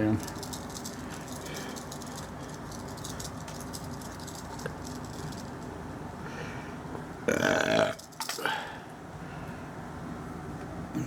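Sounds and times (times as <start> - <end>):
throaty vocal sound: 7.3 - 8.8.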